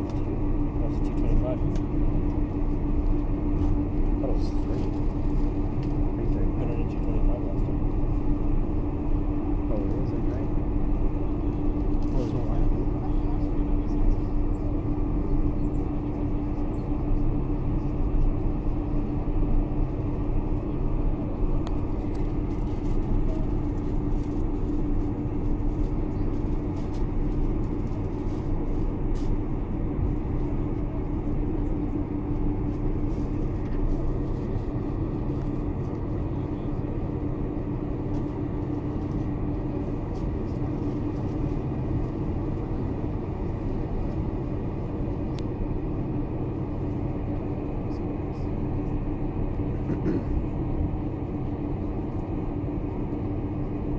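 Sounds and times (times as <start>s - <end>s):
airliner cabin engine and airflow noise: 0.0s - 53.9s.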